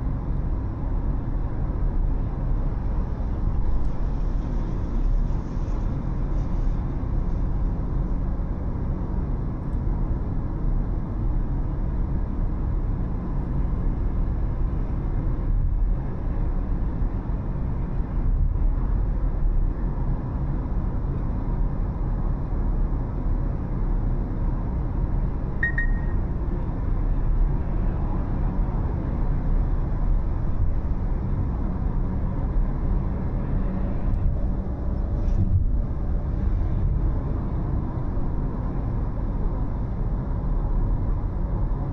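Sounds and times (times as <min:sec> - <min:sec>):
car road and engine rumble: 0:00.0 - 0:41.9
faint high-pitched tone: 0:25.6 - 0:26.2.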